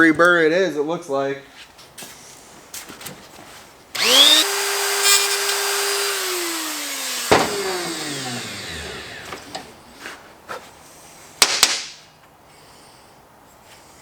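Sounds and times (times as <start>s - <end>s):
rotary tool whining: 4.0s - 9.9s.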